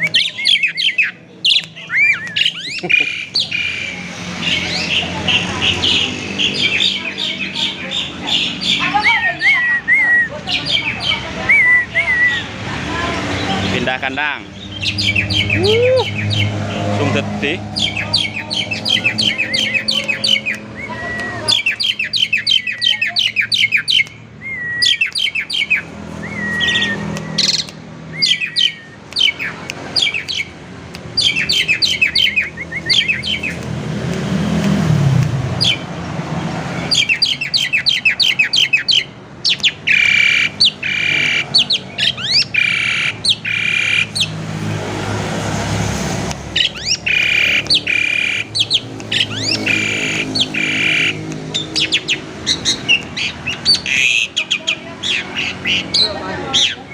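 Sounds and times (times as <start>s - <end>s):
harsh squawking: 0.0s - 33.7s, 36.6s - 45.4s, 46.4s - 56.9s
starling singing: 0.0s - 33.8s, 35.5s - 36.0s, 36.6s - 44.7s, 46.4s - 56.9s.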